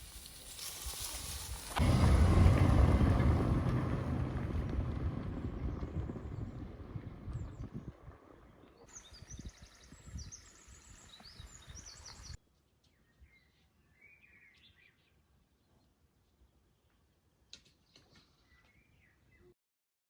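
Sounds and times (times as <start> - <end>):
low wind rumble: 0.0 - 12.4
songbirds chirping: 5.7 - 19.5.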